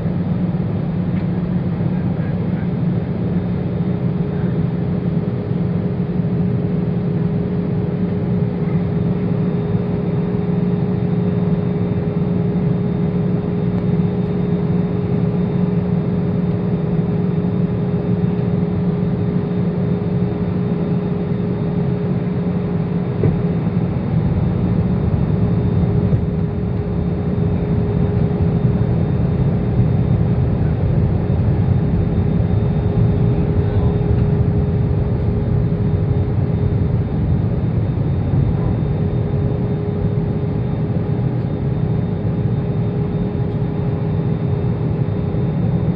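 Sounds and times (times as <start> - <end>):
jet engines humming: 0.0 - 45.9
airflow rushing in cabin: 14.2 - 45.0.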